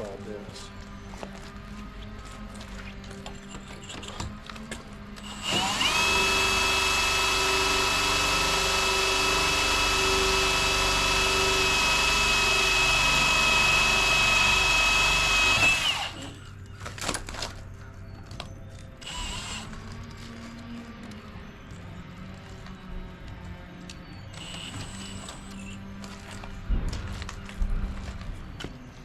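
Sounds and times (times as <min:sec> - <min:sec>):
power drill boring through wall: 0:05.2 - 0:16.4, 0:19.0 - 0:19.7, 0:24.4 - 0:25.8.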